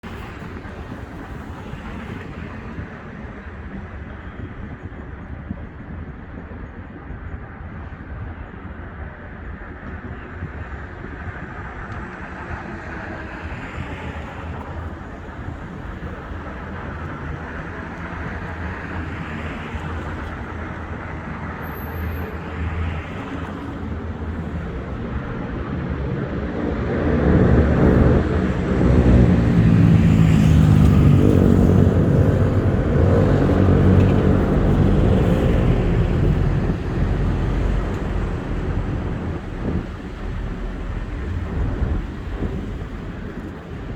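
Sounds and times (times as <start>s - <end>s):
road traffic noise: 0.0s - 43.9s
engine passing close by: 24.6s - 43.9s.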